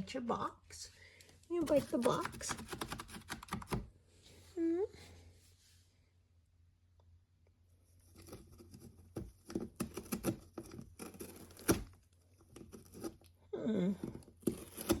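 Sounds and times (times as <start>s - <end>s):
cat chewing cardboard: 7.9s - 13.4s, 14.0s - 15.0s.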